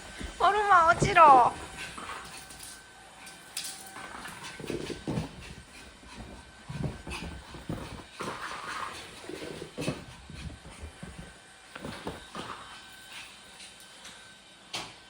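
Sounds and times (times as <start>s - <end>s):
dog paws on hard floor: 0.0s - 2.8s, 3.5s - 13.7s
thumps and scuffles: 4.3s - 12.8s.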